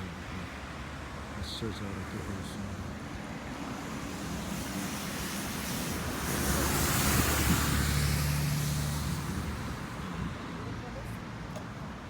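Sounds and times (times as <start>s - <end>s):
vehicle passing by: 4.4s - 10.0s.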